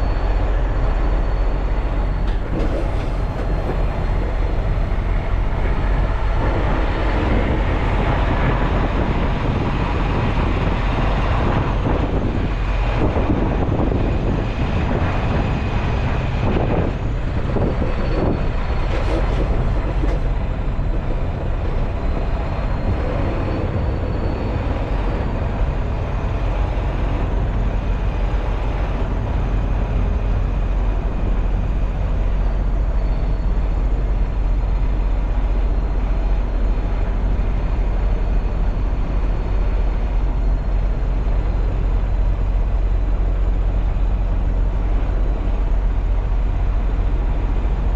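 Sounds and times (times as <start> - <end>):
road noise: 0.0 - 47.9
truck engine drone: 0.0 - 47.9.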